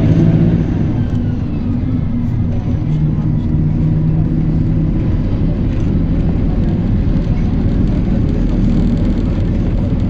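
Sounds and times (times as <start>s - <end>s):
bus engine drone: 0.0s - 10.0s
road rumble: 0.0s - 10.0s.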